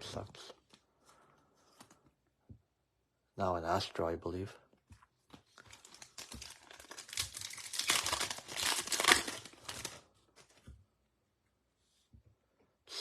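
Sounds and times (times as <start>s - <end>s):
foil wrapper crinkling: 5.5s - 10.6s.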